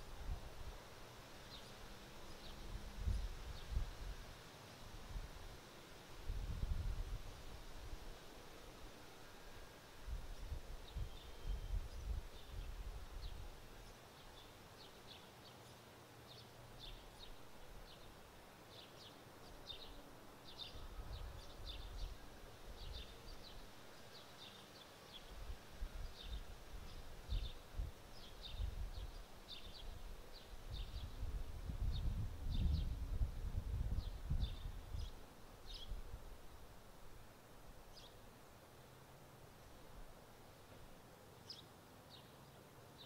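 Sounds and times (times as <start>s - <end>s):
small bird chirping: 10.3s - 18.1s
wind buffeting microphone: 30.6s - 35.2s.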